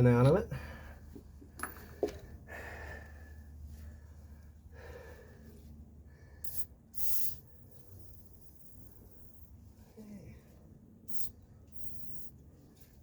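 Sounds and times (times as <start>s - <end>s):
low steady hum: 0.0s - 13.0s
man breathing heavily: 0.5s - 1.3s, 1.9s - 6.6s.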